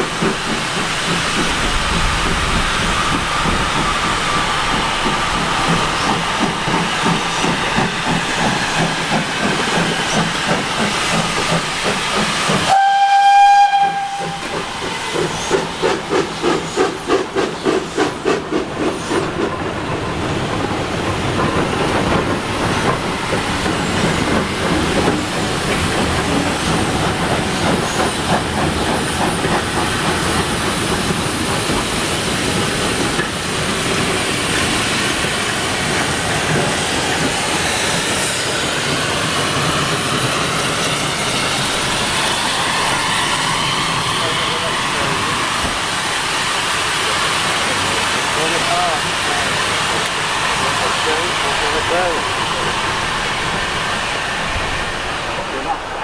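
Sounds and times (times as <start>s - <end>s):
steam hissing: 0.0s - 56.0s
steam locomotive whistle: 12.7s - 15.6s.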